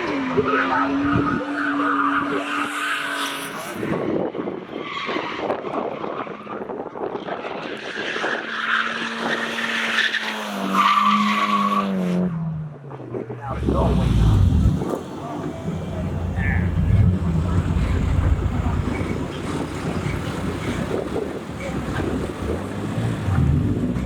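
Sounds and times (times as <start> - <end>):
car engine at high revs: 13.4 - 24.0
tyres squealing: 13.6 - 22.8.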